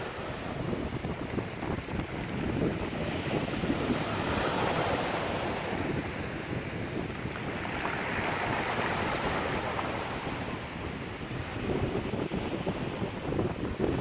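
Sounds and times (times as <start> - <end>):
surf washing onto shore: 0.0 - 14.0
wind buffeting microphone: 0.0 - 14.0.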